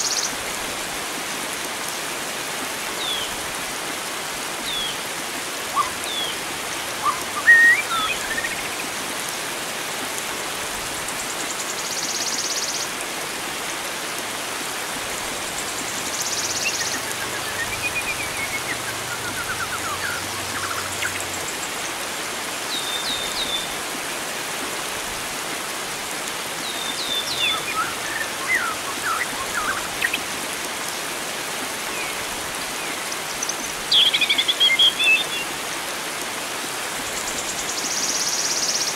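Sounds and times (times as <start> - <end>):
flowing water rushing: 0.0 - 38.9
songbirds chirping and whistling: 5.7 - 6.4, 7.0 - 8.8, 16.1 - 21.3, 26.8 - 30.2.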